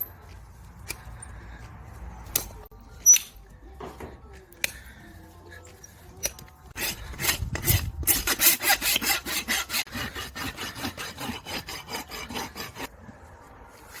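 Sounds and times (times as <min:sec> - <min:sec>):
rasp filing a hoof: 0:05.8 - 0:14.0.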